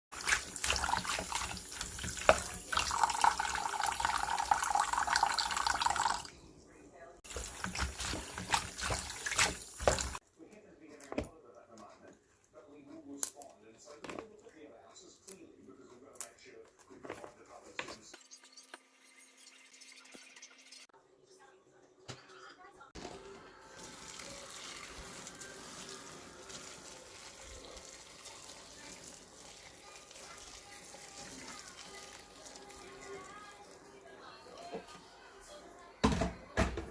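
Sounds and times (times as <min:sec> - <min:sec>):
stir-fry sizzling in a pan: 0:00.1 - 0:04.1, 0:07.3 - 0:10.2, 0:23.0 - 0:35.0
water running from a tap: 0:00.1 - 0:06.3, 0:07.3 - 0:10.2, 0:18.2 - 0:20.9, 0:23.7 - 0:33.8.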